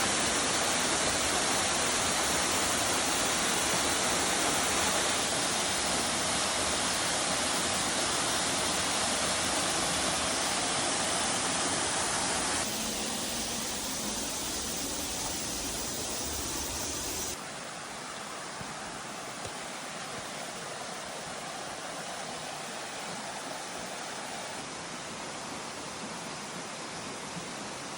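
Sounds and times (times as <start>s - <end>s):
water rushing: 0.1s - 17.4s.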